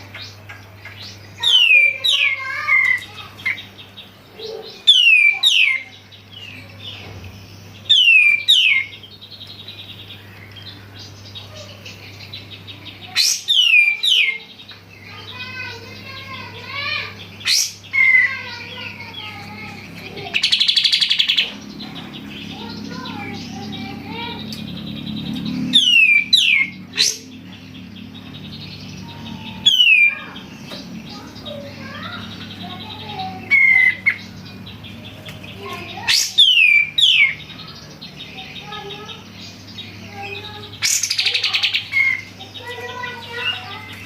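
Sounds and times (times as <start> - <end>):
bird rapid trill: 1.1 - 43.9
bird whistling and chirping: 1.4 - 3.0, 4.6 - 5.8, 7.8 - 9.0, 13.2 - 14.5, 25.7 - 27.3, 29.0 - 32.5, 36.1 - 37.4
steady low hum: 5.8 - 44.0.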